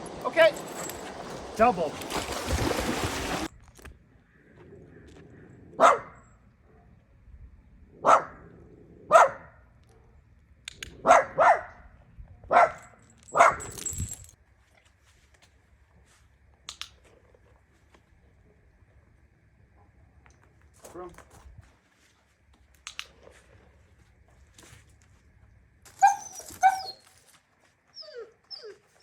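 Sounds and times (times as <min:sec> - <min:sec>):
dog barking: 0:05.8 - 0:07.0, 0:08.0 - 0:08.5, 0:09.1 - 0:10.2, 0:11.0 - 0:11.8, 0:12.5 - 0:13.7.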